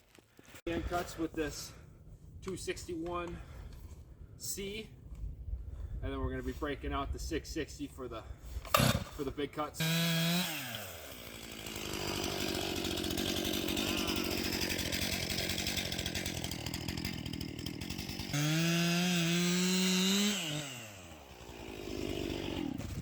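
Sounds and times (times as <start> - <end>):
chainsaw cutting log: 8.6 - 23.0.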